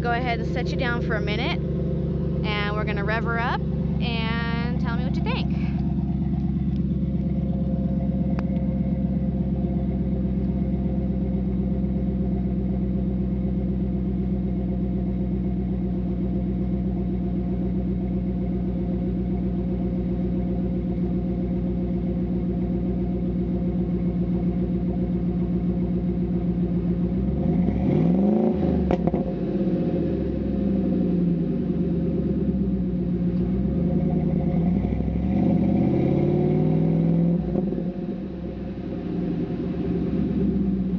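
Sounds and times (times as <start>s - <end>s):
engine revving: 0.0s - 15.4s, 26.2s - 40.9s
pickup truck exhaust idling: 0.0s - 40.9s.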